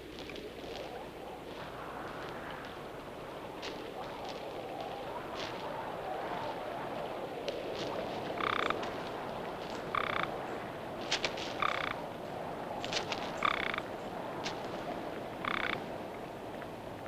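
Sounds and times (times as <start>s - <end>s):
frog chirping: 8.3s - 8.9s, 9.8s - 10.4s, 11.6s - 12.0s, 13.4s - 13.9s, 15.4s - 15.8s.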